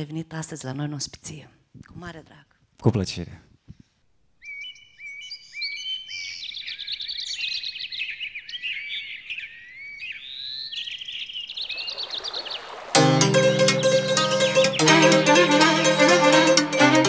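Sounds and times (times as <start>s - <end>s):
birds singing: 4.4s - 12.9s
folk band playing: 13.0s - 17.0s.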